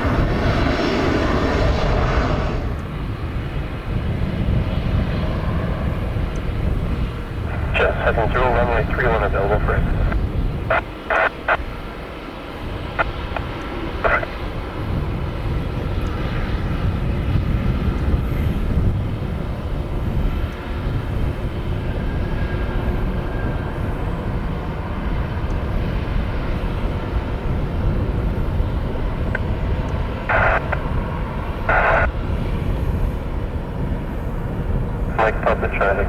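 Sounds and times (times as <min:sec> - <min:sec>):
airliner engines rumbling: 0:00.0 - 0:36.0
radio noise bursts: 0:07.4 - 0:11.9, 0:12.9 - 0:14.3, 0:30.2 - 0:32.2, 0:35.0 - 0:36.0.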